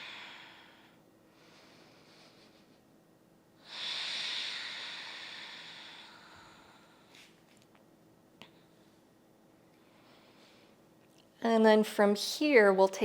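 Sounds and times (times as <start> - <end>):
person breathing deeply: 0.0 - 2.7, 3.6 - 7.4.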